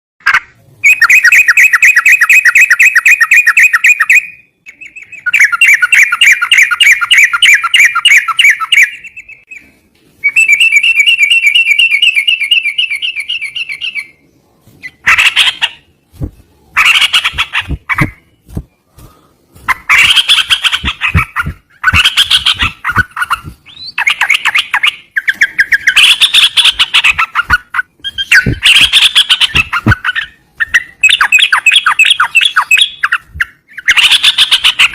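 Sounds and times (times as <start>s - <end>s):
bird squawking phrases: 0.2s - 9.7s, 14.8s - 18.3s, 19.6s - 34.9s
songbird chattering trills: 16.7s - 18.6s, 19.6s - 34.9s.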